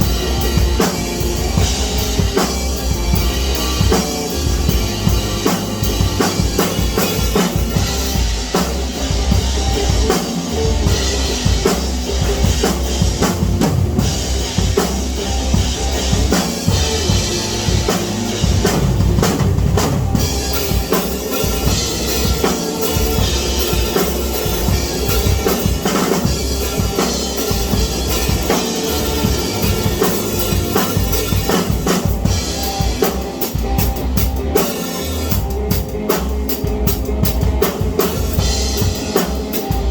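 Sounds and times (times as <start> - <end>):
bass drum: 0.0 - 39.9
snare drum: 17.9 - 35.3.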